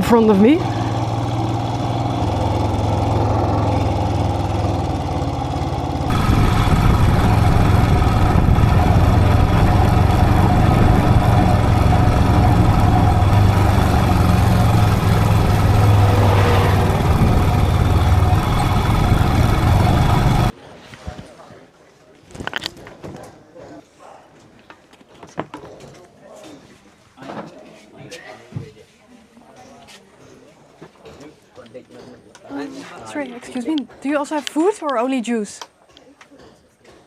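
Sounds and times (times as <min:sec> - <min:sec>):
motorcycle engine running: 0:00.0 - 0:20.5.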